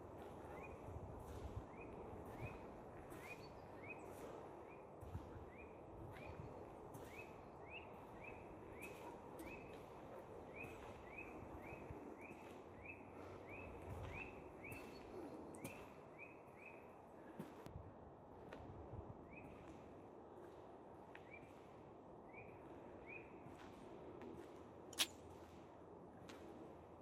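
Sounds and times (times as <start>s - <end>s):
footsteps on forest trail: 24.9s - 25.5s.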